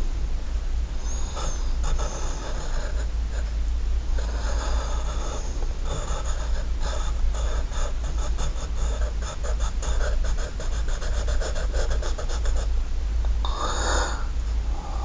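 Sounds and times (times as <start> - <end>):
steady low hum: 0.0 - 15.0
pencil scratching on paper: 4.2 - 12.7.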